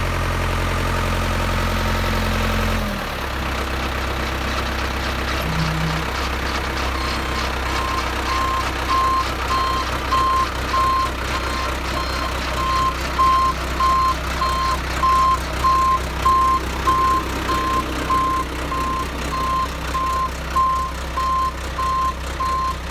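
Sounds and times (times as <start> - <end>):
backhoe engine running: 0.0 - 22.9
reversing alarm beeping: 5.4 - 22.8.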